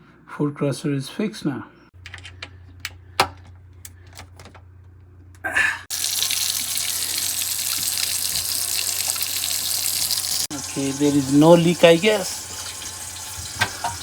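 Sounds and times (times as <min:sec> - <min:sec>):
faucet water running into sink: 0:05.9 - 0:14.0.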